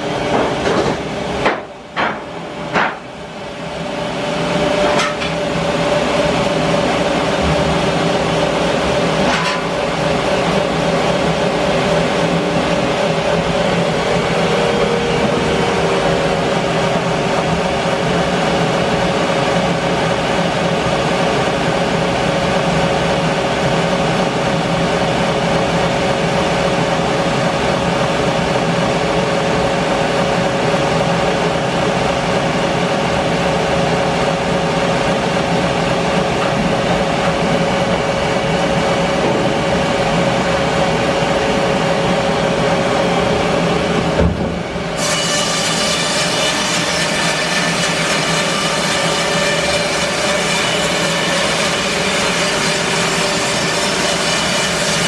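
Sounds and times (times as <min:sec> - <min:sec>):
band sawmill cutting wood: 0:00.0 - 0:22.0, 0:33.5 - 0:55.0
saw blade whine: 0:03.6 - 0:21.9, 0:44.7 - 0:55.0.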